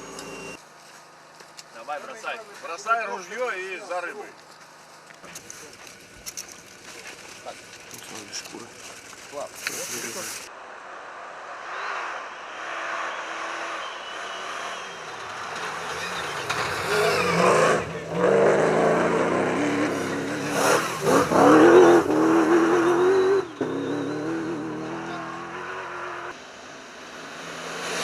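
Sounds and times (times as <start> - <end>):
rally car engine revving: 10.8 - 28.0.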